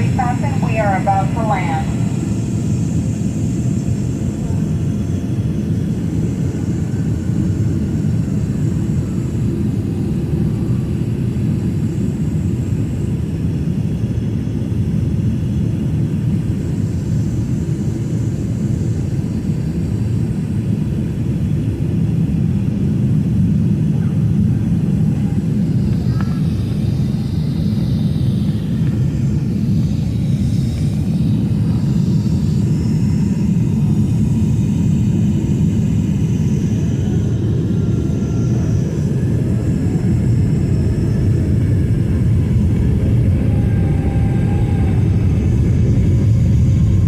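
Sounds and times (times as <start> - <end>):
jet engines rumbling: 0.0 - 47.0.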